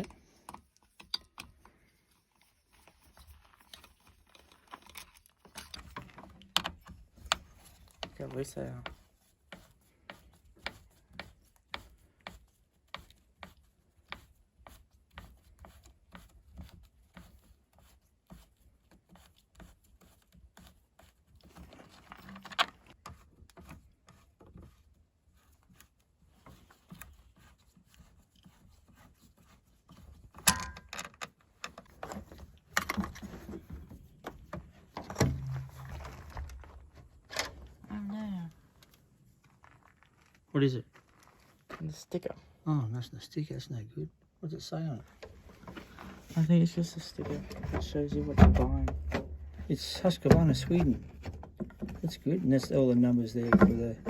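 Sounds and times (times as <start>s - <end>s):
parts rattling: 30.4s - 37.7s.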